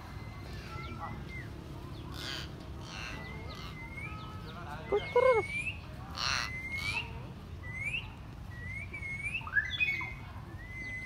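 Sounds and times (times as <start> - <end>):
harsh bird call: 2.1 - 7.0
bird squawk: 4.8 - 7.0.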